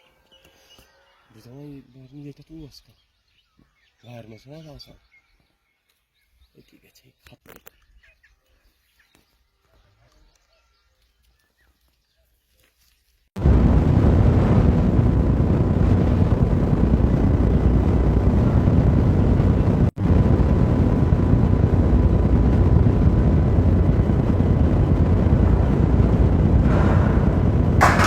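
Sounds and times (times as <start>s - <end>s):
wind buffeting microphone: 13.4s - 28.0s.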